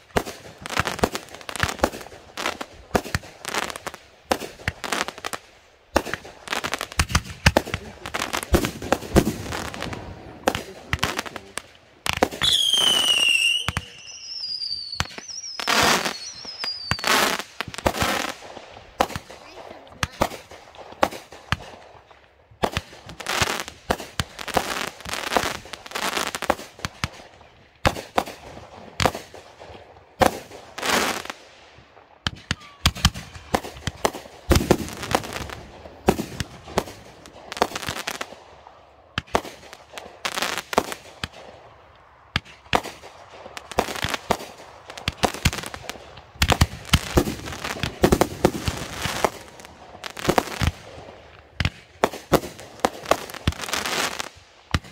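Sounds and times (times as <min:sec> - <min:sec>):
fireworks bangs: 0:00.0 - 0:54.9
fireworks crackling: 0:00.0 - 0:54.9.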